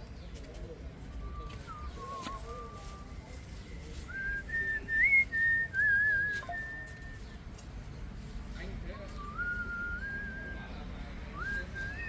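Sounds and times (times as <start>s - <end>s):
person whistling slow tune: 4.1s - 7.2s, 9.2s - 10.7s.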